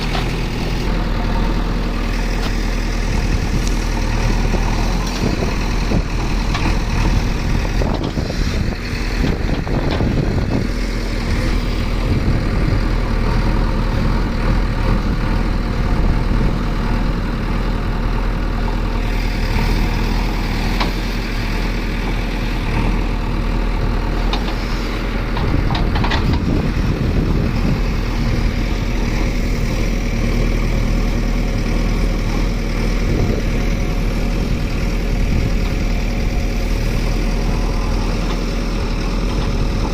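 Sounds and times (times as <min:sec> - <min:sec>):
heavy diesel machinery running: 0:00.0 - 0:39.9
clatters and knocks: 0:25.3 - 0:26.5.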